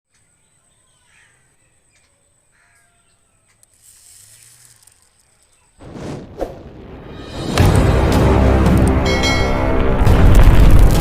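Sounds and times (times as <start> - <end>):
faint bird calls: 0.1 - 5.8
loud boom: 5.8 - 11.0.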